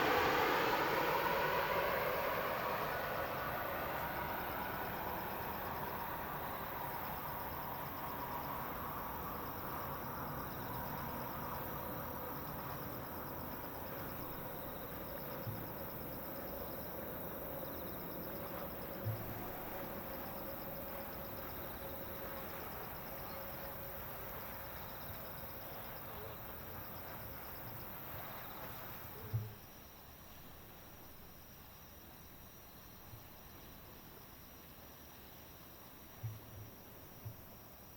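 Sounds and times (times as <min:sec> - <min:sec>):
distant jet aircraft: 0:00.0 - 0:29.5
insects chirping: 0:00.0 - 0:37.9.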